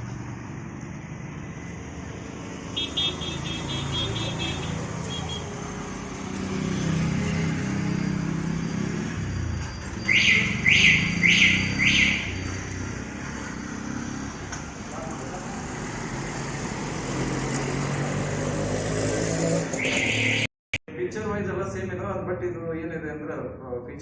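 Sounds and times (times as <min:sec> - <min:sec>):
road traffic rumble: 0:00.0 - 0:24.0
loud falling chirps: 0:08.7 - 0:12.4, 0:19.7 - 0:20.5.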